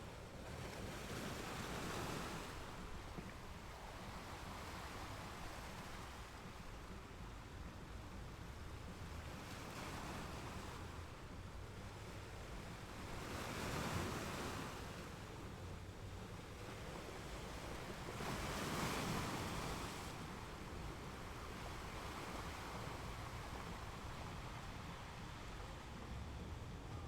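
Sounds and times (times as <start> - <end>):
ocean waves breaking: 12.2 - 27.0.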